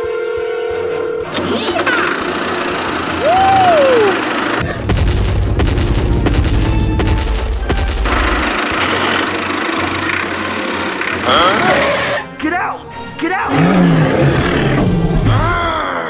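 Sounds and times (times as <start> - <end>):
loud booming and rumbling: 4.7 - 8.4.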